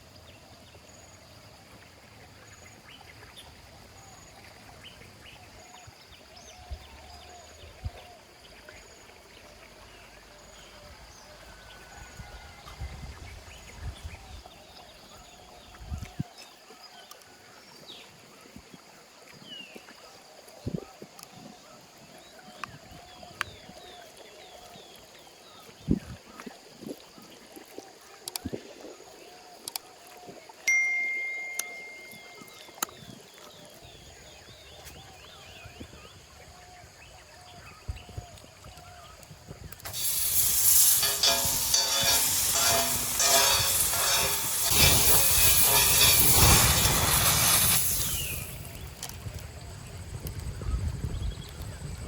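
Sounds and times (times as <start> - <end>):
faint steady high tone: 30.6 - 33.1.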